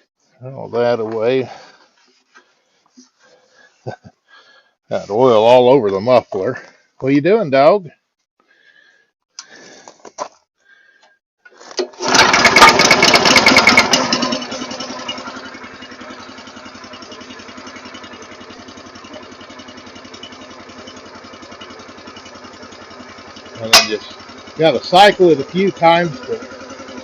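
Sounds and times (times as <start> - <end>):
small gasoline engine: 11.5 - 27.0.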